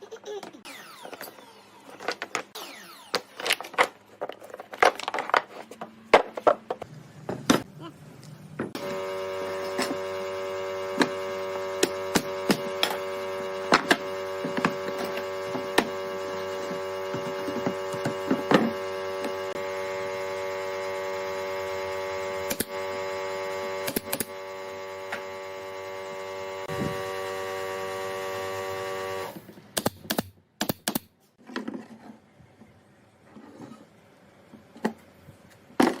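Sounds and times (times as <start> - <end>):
power tool motor humming: 8.8 - 29.4.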